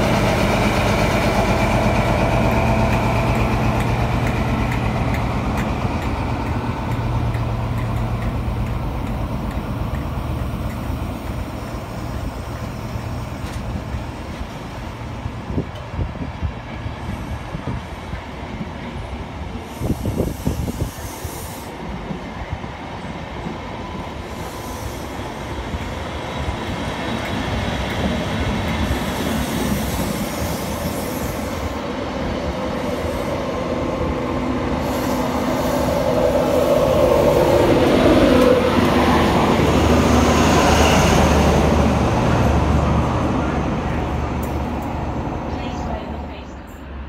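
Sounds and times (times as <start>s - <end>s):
train wheels rumbling and clicking: 0.0s - 46.4s
diesel locomotive engine hum: 0.0s - 47.0s.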